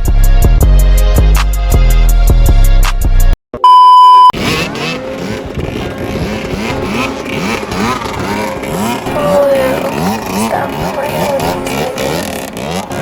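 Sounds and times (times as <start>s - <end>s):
loud steady beep: 3.6s - 4.4s
dirt bike engines revving: 4.4s - 13.0s.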